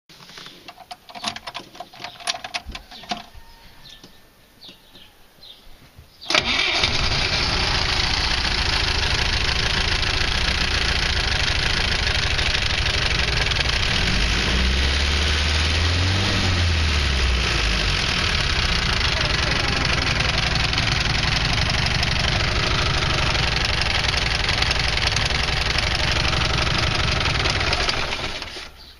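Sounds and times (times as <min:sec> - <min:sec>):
car engine starting and idling: 0:06.3 - 0:28.8.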